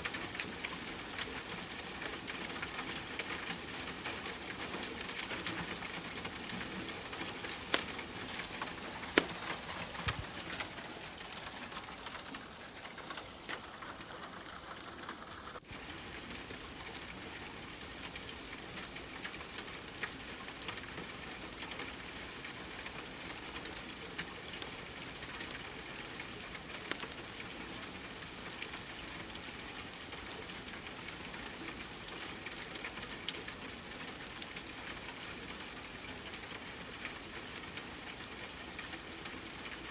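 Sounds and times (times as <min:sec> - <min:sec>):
wood fire crackling: 0:00.0 - 0:21.2
rain patter: 0:00.0 - 0:39.9.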